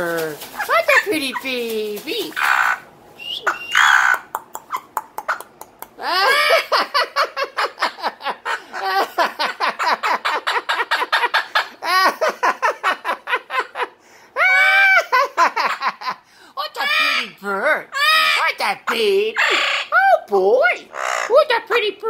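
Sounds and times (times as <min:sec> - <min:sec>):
parrot squawk: 0:02.3 - 0:05.4, 0:06.0 - 0:06.8, 0:16.8 - 0:20.0, 0:20.8 - 0:21.4
parrot laughing: 0:02.3 - 0:20.0.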